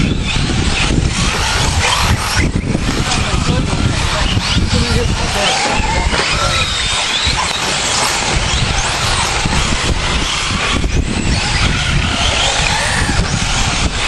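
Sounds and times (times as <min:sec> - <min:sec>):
motor whines: 0:00.0 - 0:14.0
rc car motors and tyres: 0:00.0 - 0:14.0.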